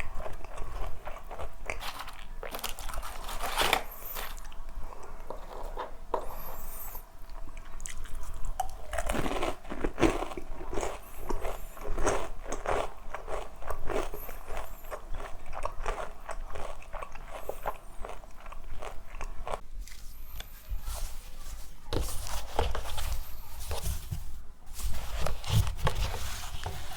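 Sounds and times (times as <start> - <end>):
crunching fried chicken: 0.0 - 6.0, 7.6 - 19.6.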